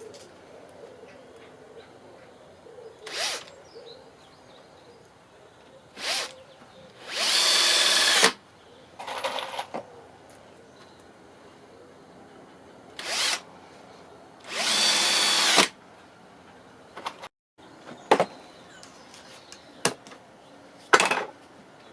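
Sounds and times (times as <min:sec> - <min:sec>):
power drill spinning: 0:03.1 - 0:03.5, 0:06.0 - 0:06.3, 0:07.0 - 0:08.4, 0:13.0 - 0:13.4, 0:14.4 - 0:15.7.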